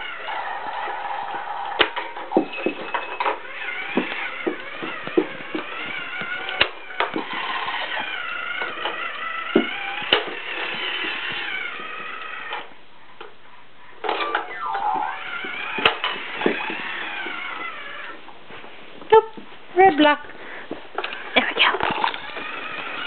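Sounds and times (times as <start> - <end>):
toy siren warbling tone: 14.2 - 18.2.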